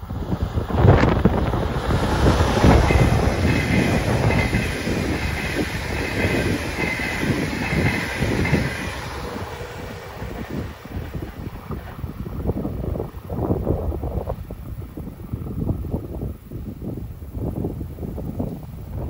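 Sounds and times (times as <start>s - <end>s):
train wheels rushing on rail: 0.0s - 19.0s
clickety-clack of wheelsets: 2.2s - 9.6s
high ringing from wheels: 2.5s - 11.2s.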